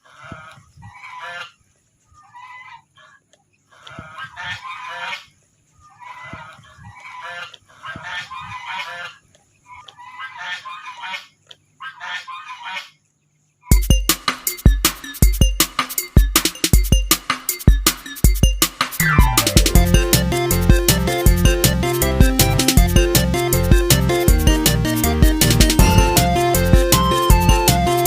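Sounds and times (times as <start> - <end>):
geese honking: 0.0 - 1.6, 2.2 - 5.3, 5.9 - 13.0.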